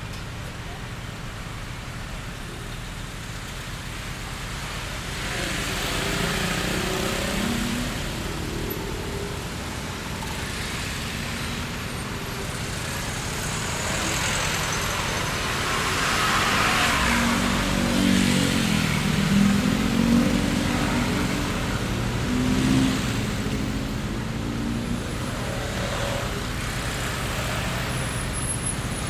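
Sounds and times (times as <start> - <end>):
road vehicles passing: 0.0 - 29.0.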